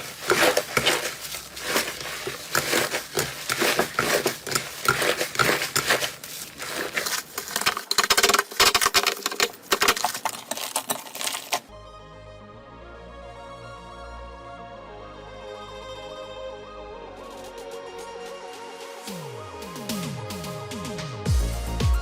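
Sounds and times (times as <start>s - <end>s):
slime squishing and popping: 0.0s - 11.7s.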